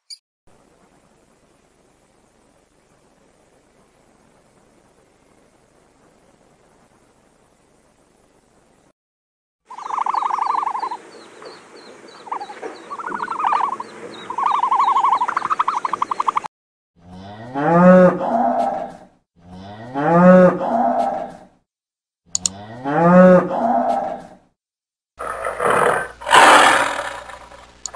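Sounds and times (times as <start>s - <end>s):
faint steady chirping: 9.7s - 16.5s
turkeys gobbling: 9.7s - 16.5s
bull mooing: 17.0s - 21.4s, 22.5s - 24.3s, 25.2s - 27.6s.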